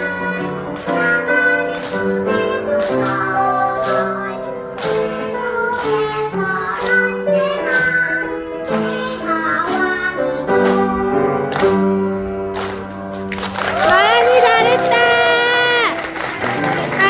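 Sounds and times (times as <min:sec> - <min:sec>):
child singing: 0:00.0 - 0:11.8.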